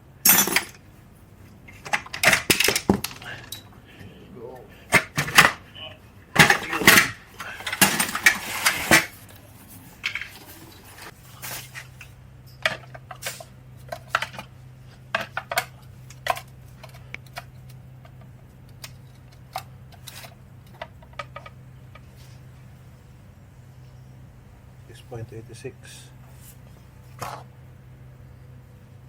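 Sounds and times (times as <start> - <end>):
steady low hum: 0.0 - 29.0
metal tools clinking: 0.2 - 0.8, 1.8 - 3.8.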